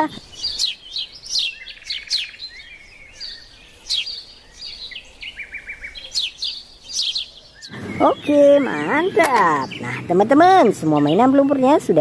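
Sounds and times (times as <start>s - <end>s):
small birds chirping and singing: 0.0s - 12.0s
bird buzzy trill: 7.0s - 12.0s.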